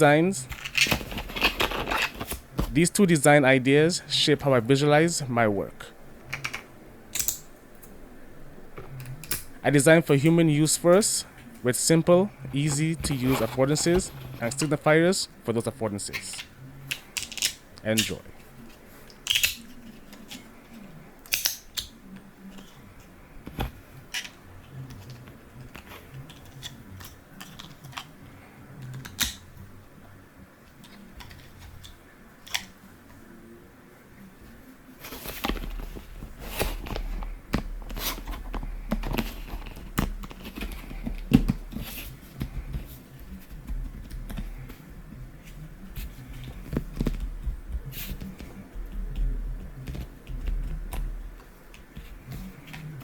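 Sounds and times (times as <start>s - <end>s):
plastic parts clicking and tapping: 16.2s - 18.2s, 23.4s - 28.1s, 35.1s - 44.8s.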